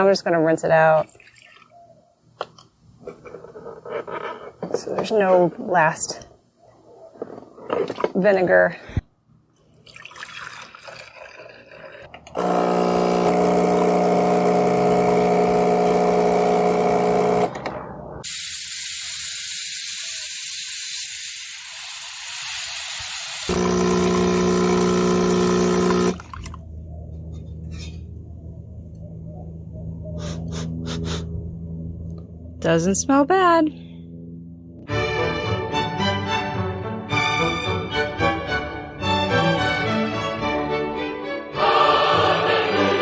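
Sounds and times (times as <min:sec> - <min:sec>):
espresso machine pump buzzing: 0:12.3 - 0:17.6, 0:18.2 - 0:26.4
steam hissing from wand: 0:18.2 - 0:23.6.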